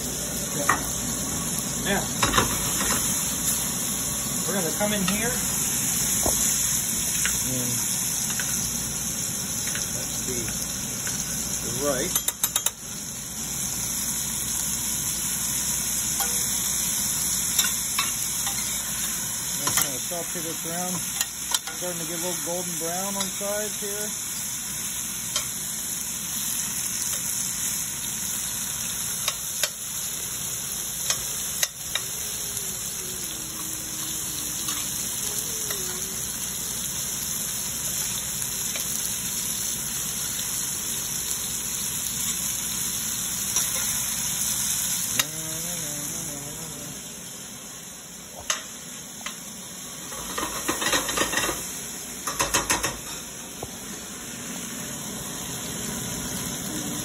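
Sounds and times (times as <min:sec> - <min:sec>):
food sizzling in oil: 0:00.0 - 0:57.0.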